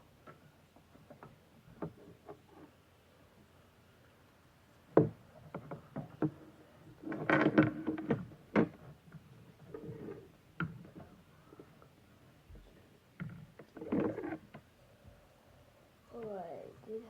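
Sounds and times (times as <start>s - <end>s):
plastic scraping and rubbing: 7.0s - 11.7s, 13.2s - 14.6s.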